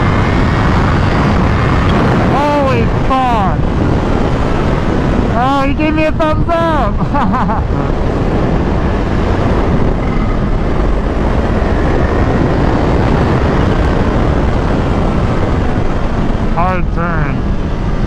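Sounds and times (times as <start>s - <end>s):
wind rush over microphone: 0.0s - 18.0s.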